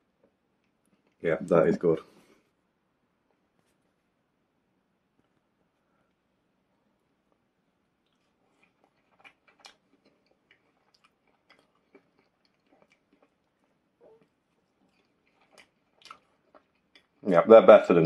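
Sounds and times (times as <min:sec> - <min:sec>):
chewing potato chips: 0:08.0 - 0:17.4.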